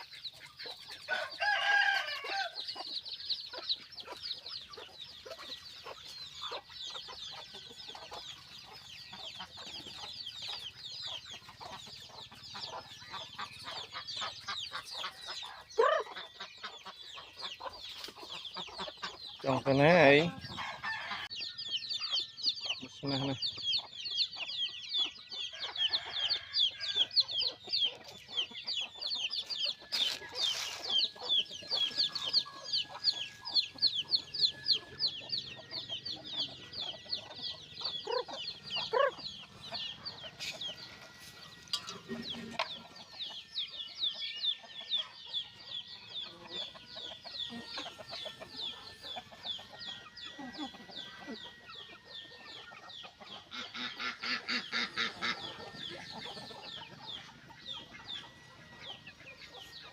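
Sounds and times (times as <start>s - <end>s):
chickens clucking: 0.0s - 59.9s
chicks cheeping: 0.0s - 59.9s.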